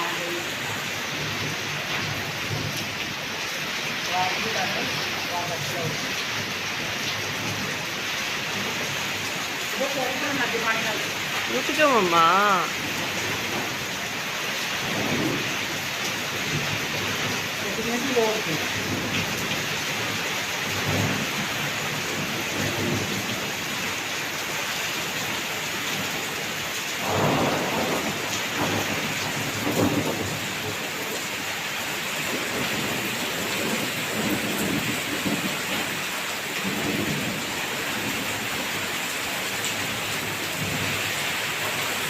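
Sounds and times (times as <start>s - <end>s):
heavy rain falling: 0.0s - 42.0s
low rolls of thunder: 14.8s - 15.8s, 27.0s - 31.0s.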